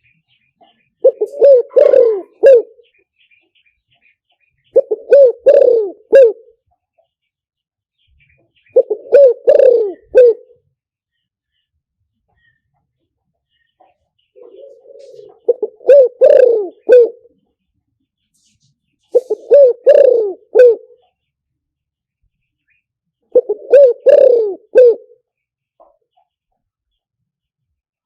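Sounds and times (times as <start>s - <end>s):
dove cooing: 1.0s - 2.9s, 4.7s - 6.6s, 8.7s - 10.6s, 14.3s - 17.4s, 19.1s - 21.1s, 23.3s - 25.2s.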